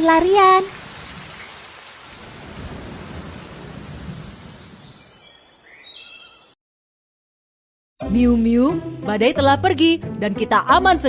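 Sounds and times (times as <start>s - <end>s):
thunder rumbling: 0.0s - 5.3s
steady rain: 0.0s - 5.5s.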